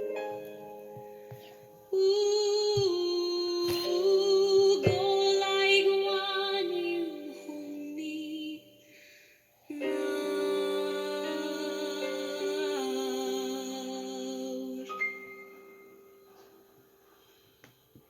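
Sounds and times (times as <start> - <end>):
young woman singing: 1.9 - 9.0, 9.7 - 15.2.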